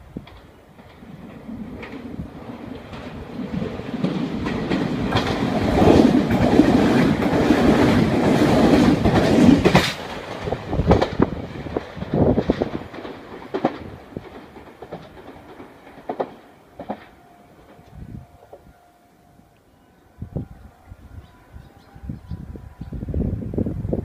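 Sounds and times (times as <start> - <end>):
train wheels clattering over rail joints: 0.2 - 17.9.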